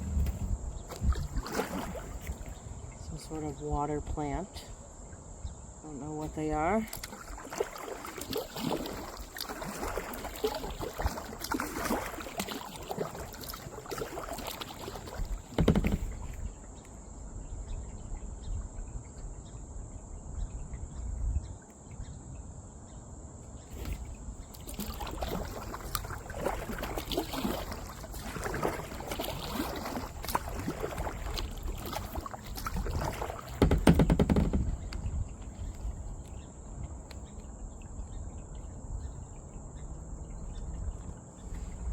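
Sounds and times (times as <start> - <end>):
paddle splashing in water: 0.0 - 4.8, 6.2 - 17.6, 23.6 - 39.5.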